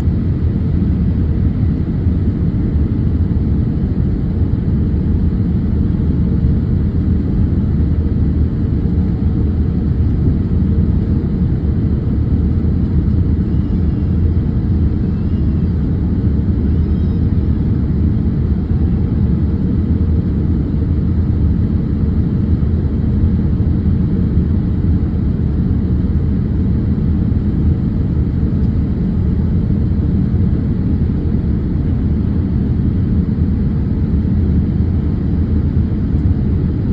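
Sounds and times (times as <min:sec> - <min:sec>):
jet engine cabin rumble: 0:00.0 - 0:36.9.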